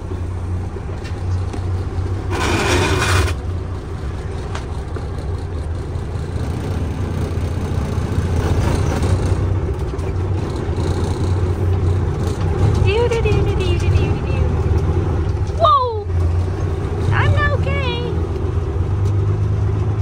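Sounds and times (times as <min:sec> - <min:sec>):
vehicle engine droning: 0:00.0 - 0:20.0.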